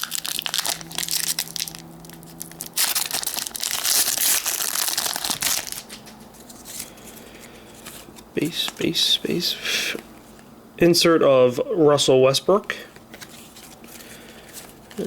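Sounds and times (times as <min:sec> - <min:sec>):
card pack wrapper tearing and crinkling: 0:00.0 - 0:07.0.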